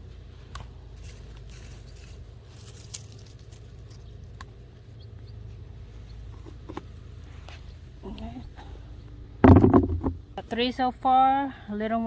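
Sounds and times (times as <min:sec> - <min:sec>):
soil scraping and rustling: 0:00.0 - 0:04.8.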